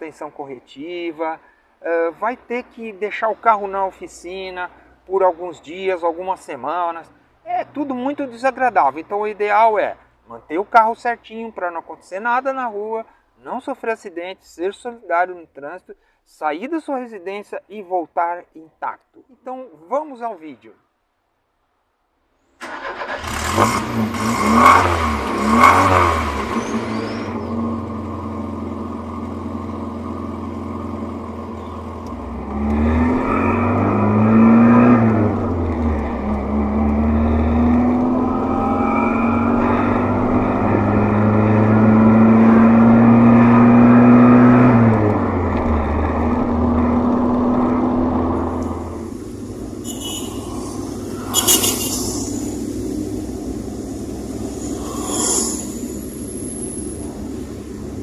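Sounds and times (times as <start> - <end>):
car engine driving under load: 22.6 - 49.9, 50.6 - 54.9.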